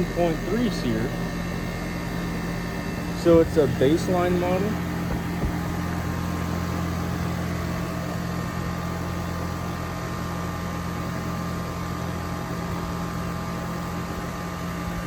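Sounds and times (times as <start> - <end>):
compressor humming: 0.0 - 15.0
condenser fan air noise: 0.0 - 15.0.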